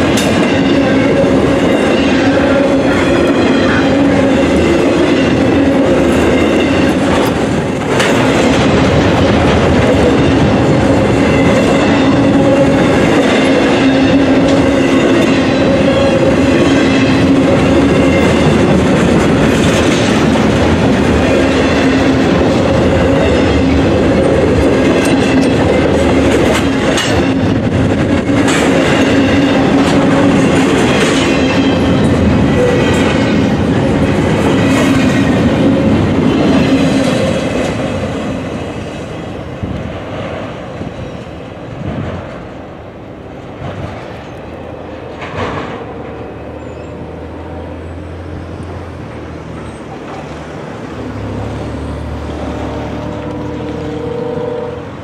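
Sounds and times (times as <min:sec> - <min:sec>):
wheels clicking over rail joints: 0:00.0 - 0:38.1
freight train rolling past: 0:00.0 - 0:55.0.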